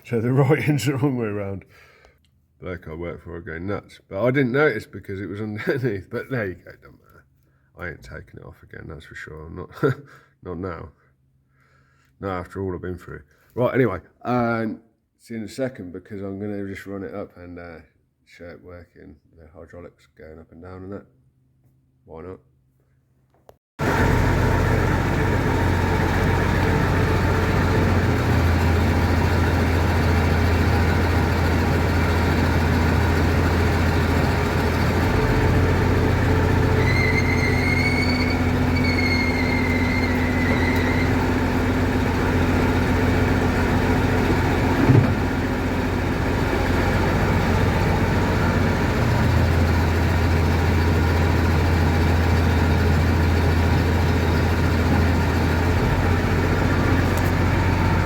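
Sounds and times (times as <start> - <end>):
combine harvester engine running: 23.8 - 58.0
short clunk: 44.8 - 45.2.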